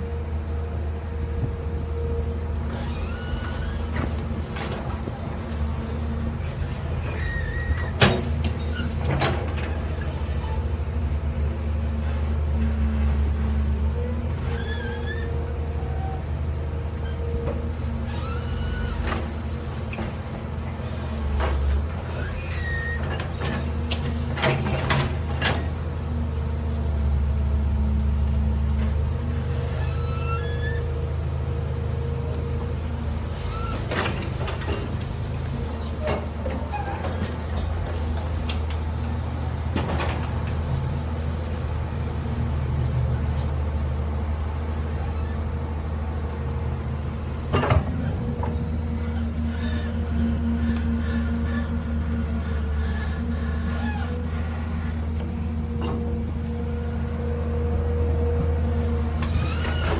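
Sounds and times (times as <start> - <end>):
excavator diesel engine running: 0.0 - 59.9
machine squeaks: 2.7 - 4.2, 6.9 - 10.7, 14.4 - 15.4, 18.0 - 25.7, 29.6 - 31.0, 33.4 - 34.9, 35.8 - 37.9, 59.2 - 59.9.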